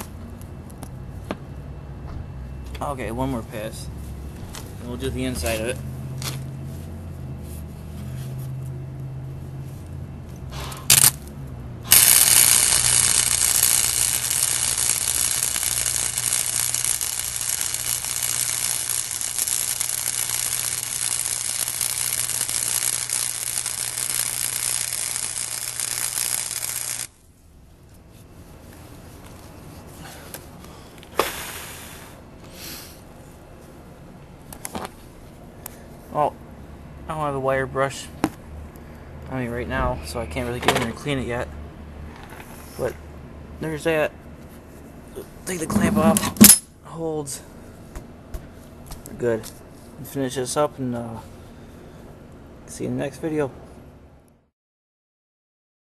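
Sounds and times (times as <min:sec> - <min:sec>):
welder hum: 0:10.6 - 0:11.2, 0:11.8 - 0:27.2
welding arc crackling: 0:10.8 - 0:27.2.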